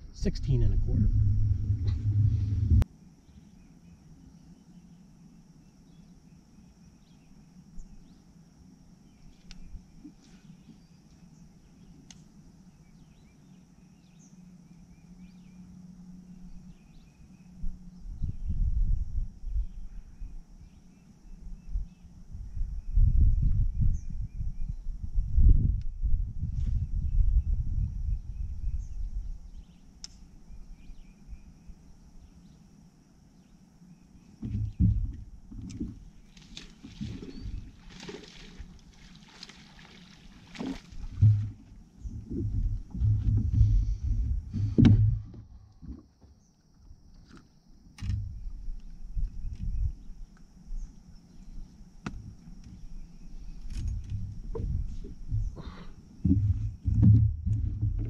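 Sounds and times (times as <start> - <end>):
loud low rumbling thumps: 0.0 - 2.8, 41.1 - 45.6, 53.9 - 58.0
high insect drone: 0.0 - 58.0
steady low hum: 0.0 - 58.0
birds chirping faintly: 26.8 - 57.2
click: 30.0 - 30.2.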